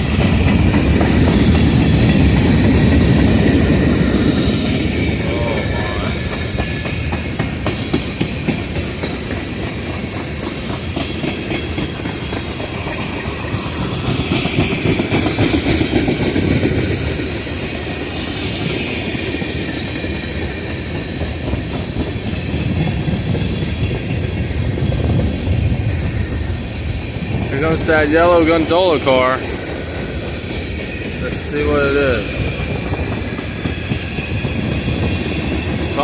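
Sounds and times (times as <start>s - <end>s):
freight cars rumbling: 0.0s - 19.1s, 19.9s - 36.0s
wheels clicking over rail joints: 0.0s - 24.7s
faint wheel squeal: 12.3s - 17.9s.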